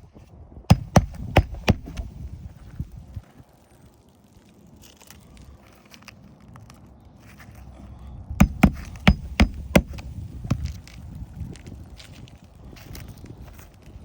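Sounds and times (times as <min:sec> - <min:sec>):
rustling and scraping: 0:00.0 - 0:14.0
hammer striking nails: 0:00.7 - 0:02.1, 0:08.4 - 0:10.7.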